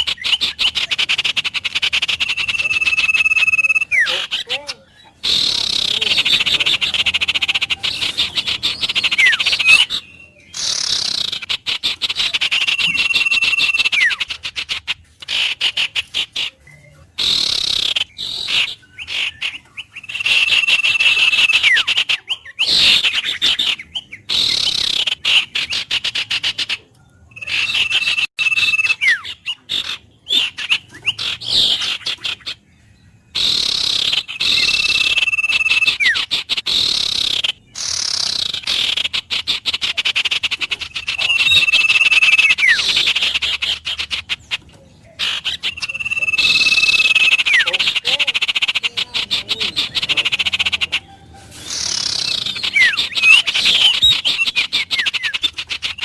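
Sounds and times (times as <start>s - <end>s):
bird trilling and whistling: 0.0s - 56.0s.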